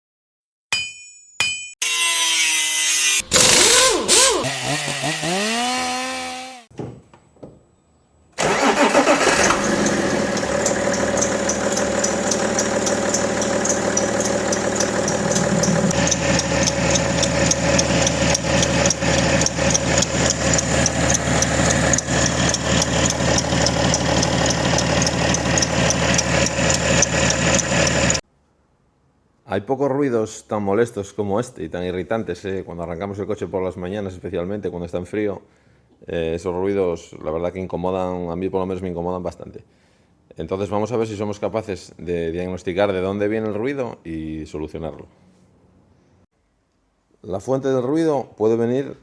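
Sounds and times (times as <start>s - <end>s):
diesel engine starting and idling: 8.4s - 28.2s
sounds with gliding pitch: 9.9s - 24.0s.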